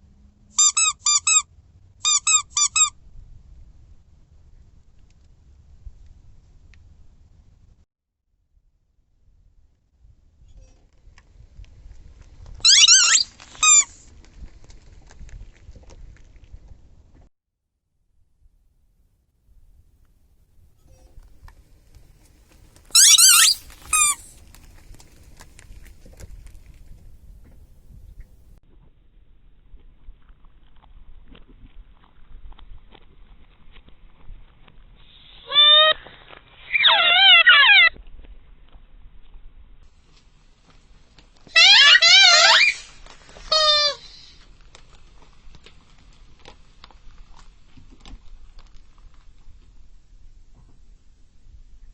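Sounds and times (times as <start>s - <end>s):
rubber squeaky toy squeaking: 0.6s - 1.4s, 2.0s - 2.9s, 12.6s - 13.9s, 22.9s - 24.4s, 35.4s - 37.9s, 41.5s - 44.4s
high wavering squeal: 23.0s - 24.3s.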